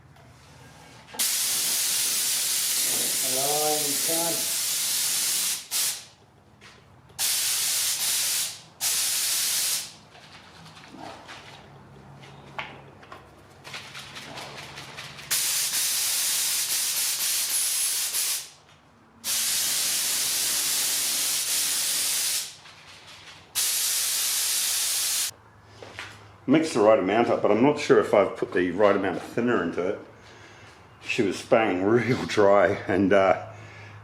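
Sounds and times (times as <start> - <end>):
spray gun hissing: 1.2 - 6.1, 7.2 - 10.0, 15.3 - 18.6, 19.2 - 22.6, 23.6 - 25.3.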